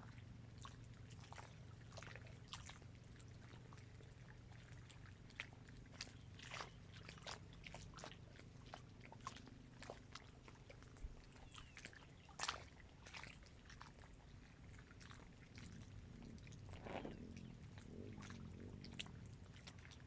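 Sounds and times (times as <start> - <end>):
faint low hum: 0.0 - 20.0
small waves lapping: 0.0 - 20.0.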